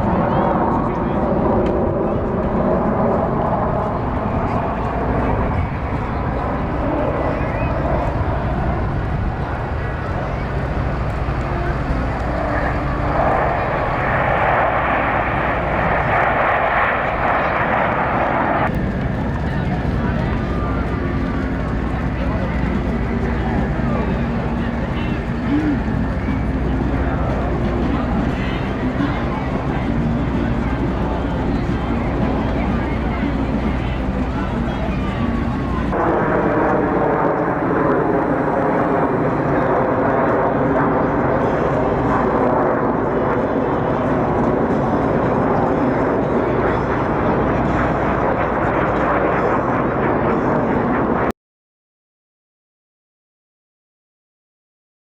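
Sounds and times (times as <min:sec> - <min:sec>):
jet aircraft flying past: 0:00.0 - 0:51.3.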